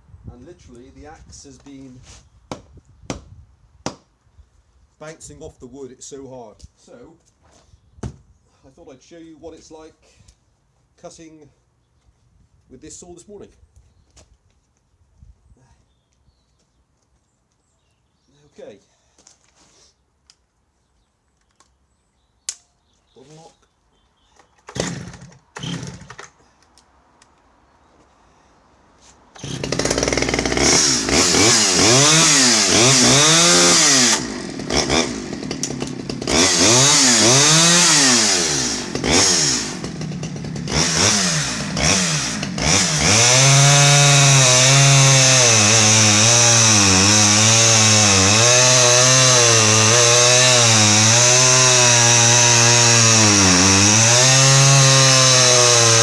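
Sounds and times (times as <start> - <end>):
chainsaw revving: 24.7 - 26.4, 29.4 - 56.0.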